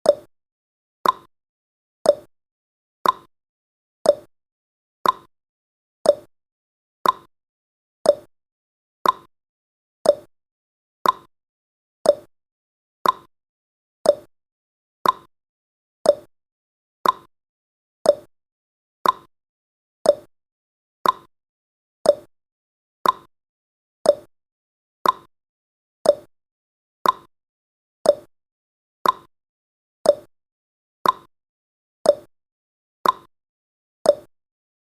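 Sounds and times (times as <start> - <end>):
timer ticking: 0.0 - 0.3, 1.0 - 1.3, 2.0 - 2.3, 3.0 - 3.3, 4.0 - 4.3, 5.0 - 5.3, 6.0 - 6.3, 7.0 - 7.3, 8.0 - 8.3, 9.0 - 9.3, 10.0 - 10.3, 11.0 - 11.3, 12.0 - 12.3, 13.0 - 13.3, 14.0 - 14.3, 15.0 - 15.3, 16.0 - 16.3, 17.0 - 17.3, 18.0 - 18.3, 19.0 - 19.3, 20.0 - 20.3, 21.0 - 21.3, 22.0 - 22.3, 23.0 - 23.3, 24.0 - 24.3, 25.0 - 25.3, 26.0 - 26.3, 27.0 - 27.3, 28.0 - 28.3, 29.0 - 29.3, 30.0 - 30.3, 31.0 - 31.3, 32.0 - 32.3, 33.0 - 33.3, 34.1 - 34.3.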